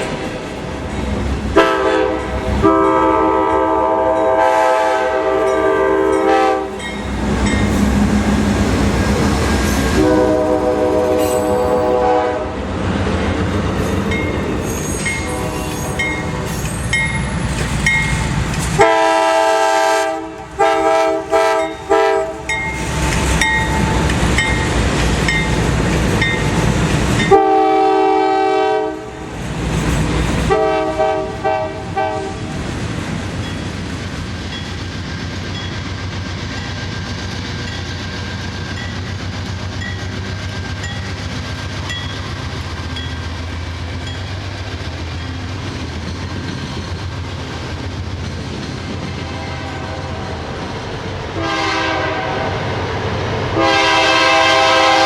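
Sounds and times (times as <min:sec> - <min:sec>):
train rumble and clatter: 0:00.0 - 0:55.0
train air horn blasts: 0:01.5 - 0:06.8, 0:09.8 - 0:12.6, 0:15.0 - 0:16.2, 0:18.8 - 0:22.5, 0:27.2 - 0:29.2, 0:30.5 - 0:32.5, 0:49.2 - 0:50.2, 0:51.4 - 0:52.6, 0:53.6 - 0:55.0.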